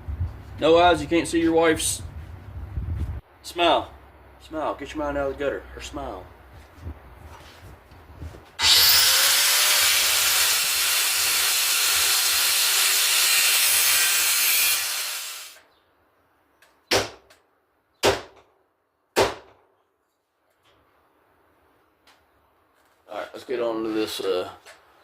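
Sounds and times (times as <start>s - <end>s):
power tool running: 8.6s - 15.6s.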